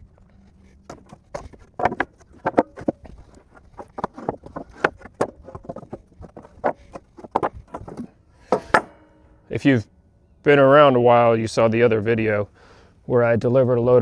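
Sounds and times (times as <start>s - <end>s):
wooden boards clattering: 0.9s - 9.0s.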